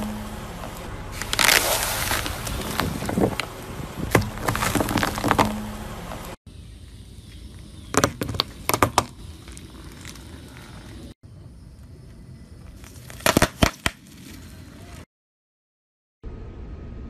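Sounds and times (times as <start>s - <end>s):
tyre crushing foam: 1.1s - 5.8s.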